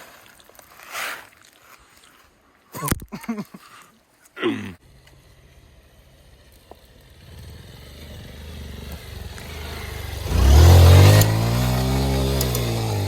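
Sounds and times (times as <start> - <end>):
vehicle engine running: 4.8 - 13.0.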